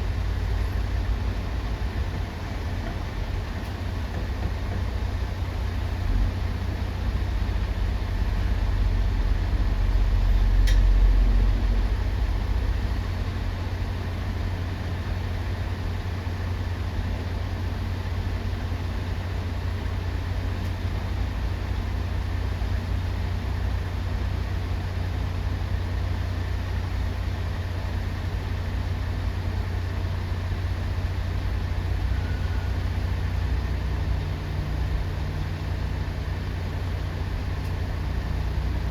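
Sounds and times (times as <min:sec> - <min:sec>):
heavy engines rumbling: 0:00.0 - 0:38.9.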